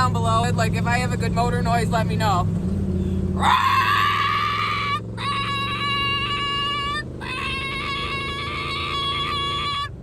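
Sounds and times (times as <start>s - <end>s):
woman imitating engine: 3.4s - 10.0s.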